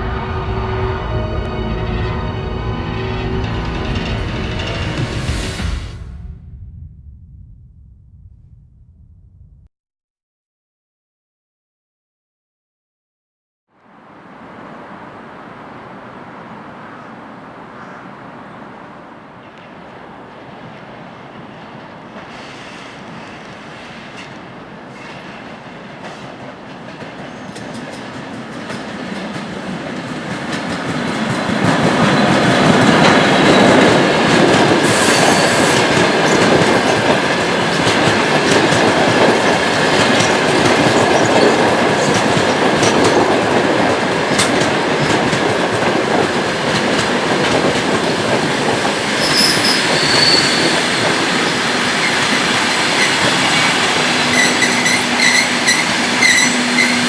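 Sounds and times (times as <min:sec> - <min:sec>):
train carriages rumbling on rails: 0:00.0 - 0:06.3, 0:13.9 - 0:57.0
train wheel squeal: 0:21.5 - 0:26.4, 0:27.0 - 0:28.2, 0:31.1 - 0:43.2, 0:48.9 - 0:57.0.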